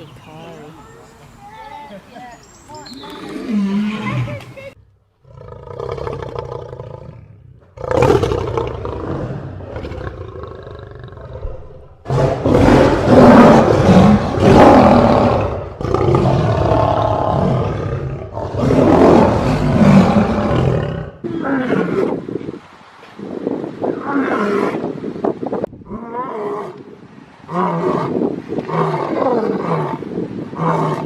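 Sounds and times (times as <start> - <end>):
lion roaring: 5.2 - 22.1.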